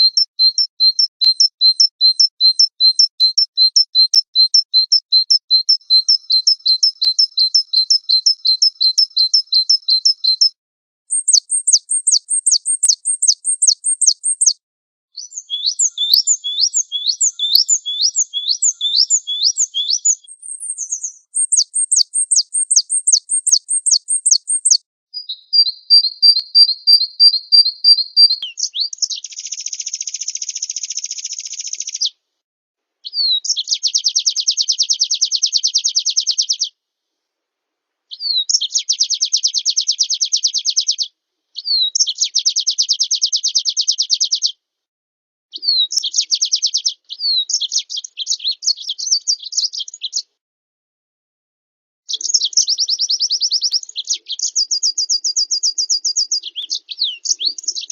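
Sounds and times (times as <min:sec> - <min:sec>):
songbird trills: 0:00.0 - 0:14.6, 0:15.2 - 0:32.1, 0:52.1 - 0:57.9.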